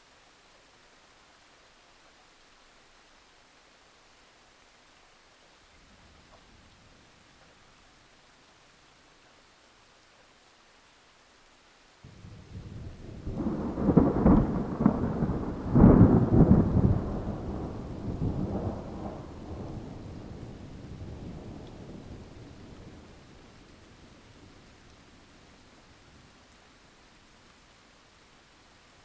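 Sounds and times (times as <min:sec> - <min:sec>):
faint steady hiss: 0:00.0 - 0:29.0
rain: 0:00.0 - 0:29.0
thunder rumbling: 0:12.1 - 0:23.5.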